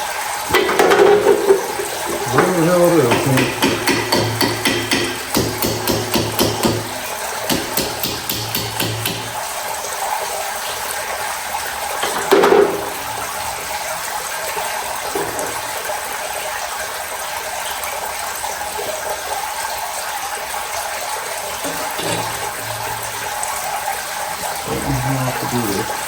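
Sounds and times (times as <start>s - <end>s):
knock: 3.1s - 6.9s, 7.5s - 9.3s.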